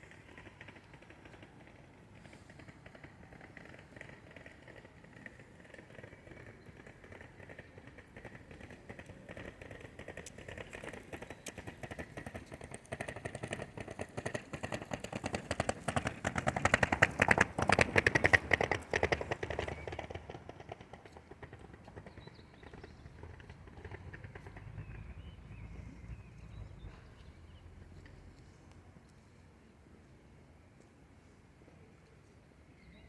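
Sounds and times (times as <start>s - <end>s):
train wheels clattering on rails: 0.0s - 26.0s.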